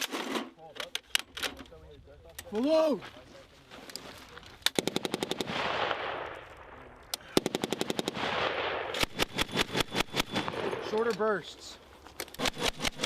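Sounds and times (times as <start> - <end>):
machine gun firing bursts: 4.8 - 6.2, 7.3 - 10.9, 12.4 - 13.0
gunfire echo: 4.8 - 11.0.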